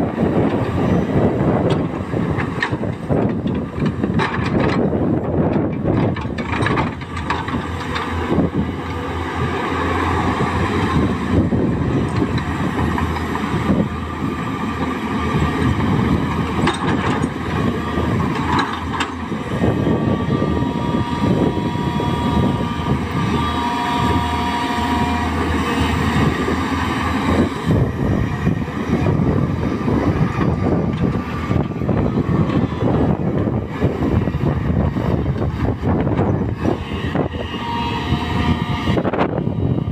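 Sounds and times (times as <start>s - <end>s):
excavator diesel engine under load: 0.0s - 39.9s
machine clatter and rattle: 1.6s - 8.4s, 14.7s - 19.3s.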